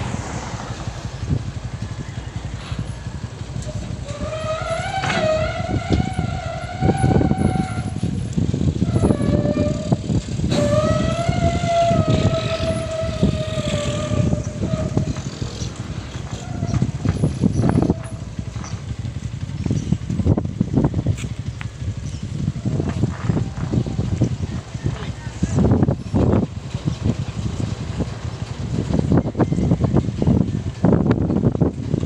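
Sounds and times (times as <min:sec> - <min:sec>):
high whining tone: 0:00.0 - 0:18.9
heavy excavator engine under load: 0:00.0 - 0:32.0
clanks and knocks: 0:10.5 - 0:20.1.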